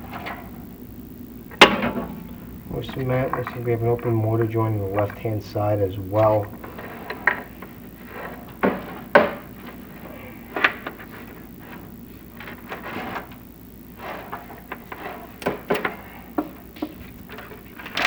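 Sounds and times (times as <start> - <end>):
rod scraping in flue: 6.6 - 16.4.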